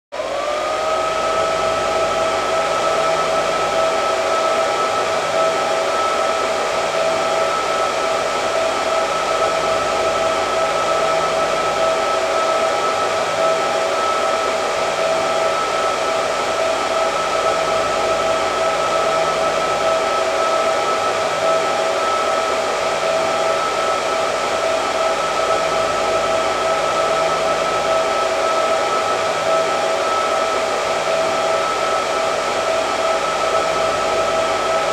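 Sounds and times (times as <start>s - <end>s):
hair dryer running: 0.2s - 34.9s.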